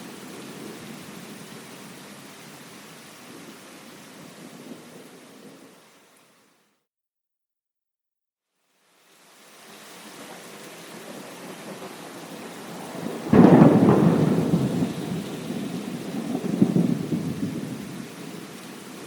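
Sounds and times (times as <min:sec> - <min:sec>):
rain falling: 0:00.0 - 0:06.7, 0:08.7 - 0:19.0
thunder clap and rumbling: 0:11.3 - 0:18.5.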